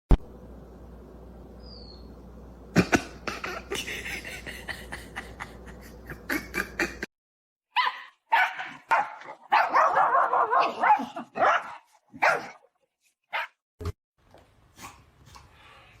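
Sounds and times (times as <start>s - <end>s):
dog barking and yipping: 7.7s - 12.6s, 13.3s - 13.6s.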